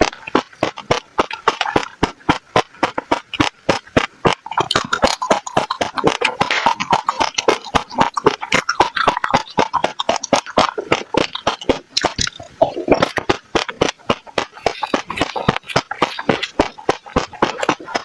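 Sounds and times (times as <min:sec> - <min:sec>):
seeds crunching in mouth: 0:00.0 - 0:18.0.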